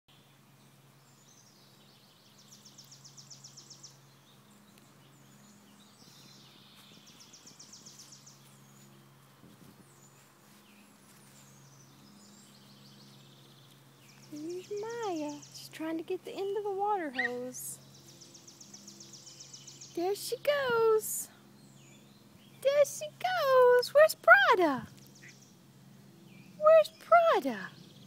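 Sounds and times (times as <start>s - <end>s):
songbird trilling: 11.5s - 15.8s, 17.0s - 21.0s, 24.8s - 25.6s.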